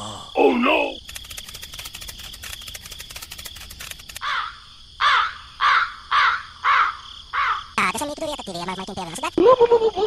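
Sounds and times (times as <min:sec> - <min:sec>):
dry ticking rattle: 0:01.0 - 0:04.2
crow cawing: 0:04.2 - 0:07.7.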